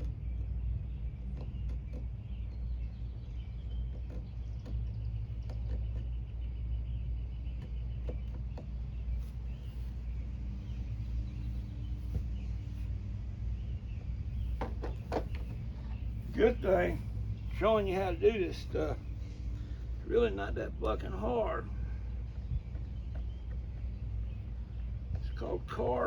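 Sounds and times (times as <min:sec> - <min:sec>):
birds chirping: 0:00.0 - 0:26.0
low outdoor rumble: 0:00.0 - 0:26.0.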